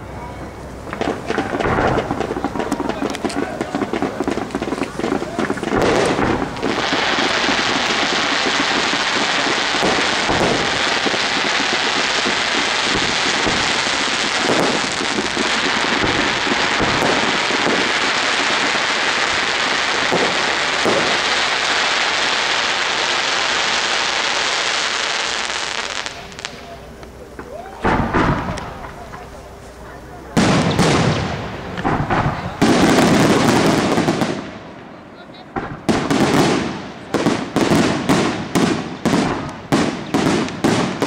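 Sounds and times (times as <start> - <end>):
fireworks crackling hiss: 0.0 - 41.0
firework thumps: 0.8 - 21.3, 26.1 - 29.3, 30.3 - 34.6.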